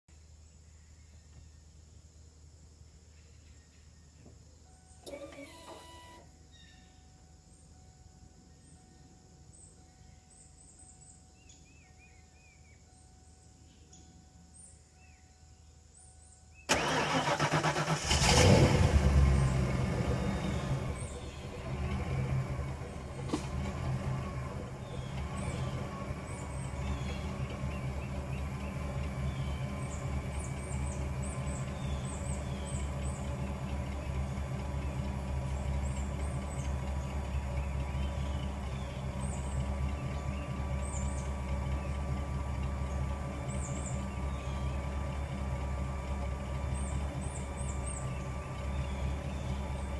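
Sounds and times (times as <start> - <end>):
car engine idling: 16.2 - 49.9.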